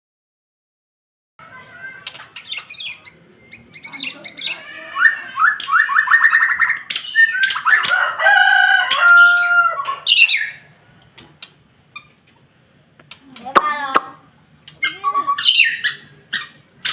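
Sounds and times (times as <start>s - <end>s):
songbird singing whistles: 2.4s - 7.9s, 14.7s - 16.9s.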